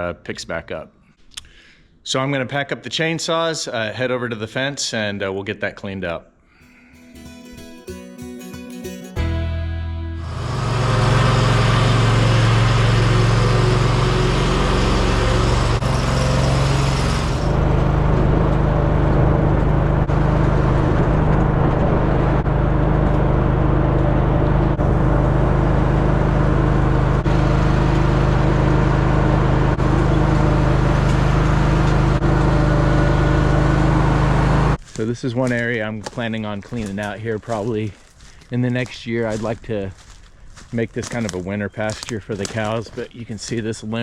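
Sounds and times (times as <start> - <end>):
vehicle engine humming: 9.1 - 34.8.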